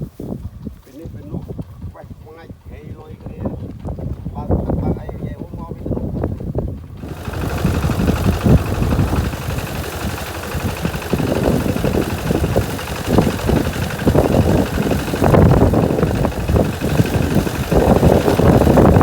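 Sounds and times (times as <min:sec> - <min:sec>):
harvesting machine engine running: 0:06.8 - 0:19.0.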